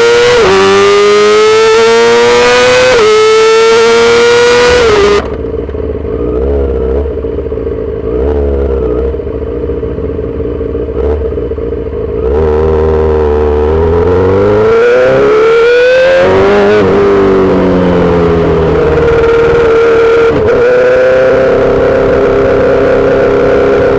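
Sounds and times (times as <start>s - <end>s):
motorcycle engine accelerating: 0.0s - 23.9s.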